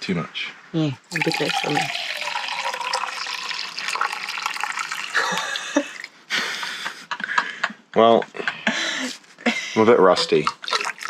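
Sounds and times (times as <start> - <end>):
liquid pouring into container: 1.0 - 5.6, 10.2 - 11.0.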